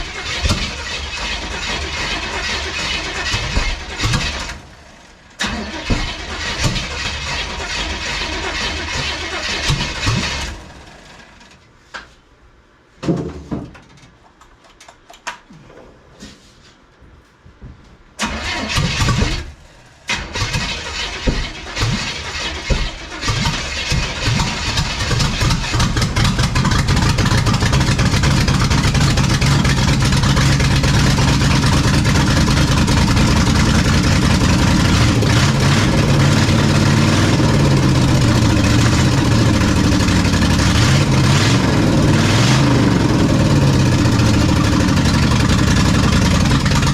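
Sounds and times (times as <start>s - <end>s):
engine running steadily: 0.0s - 11.3s, 18.3s - 46.9s
engine sputtering and restarting: 0.0s - 11.6s, 18.2s - 46.9s.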